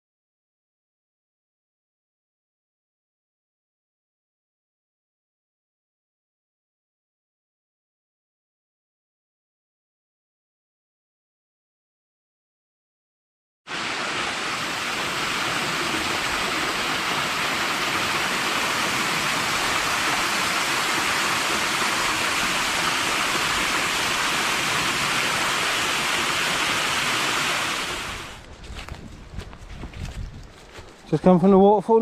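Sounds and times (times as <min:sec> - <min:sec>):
small waterfall rushing: 0:13.7 - 0:28.4.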